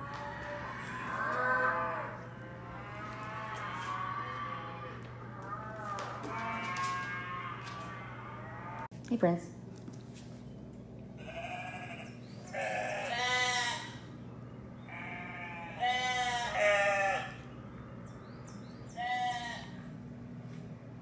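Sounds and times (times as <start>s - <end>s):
recorded sheep bleating: 0.0s - 8.9s, 11.2s - 14.0s, 14.9s - 17.4s
faint low hum: 0.0s - 21.0s.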